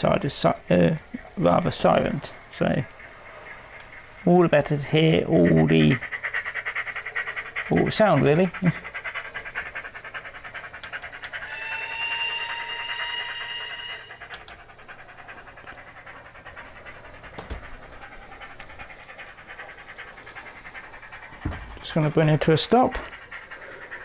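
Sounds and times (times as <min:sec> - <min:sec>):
steam locomotive exhaust chuffs: 0:00.0 - 0:24.0
steam whistle: 0:11.3 - 0:14.4.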